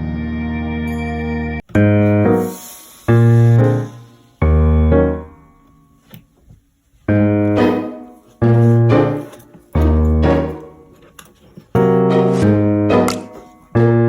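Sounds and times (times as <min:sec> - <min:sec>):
slow piano chords: 0:00.0 - 0:06.1, 0:07.1 - 0:11.0, 0:11.8 - 0:14.0.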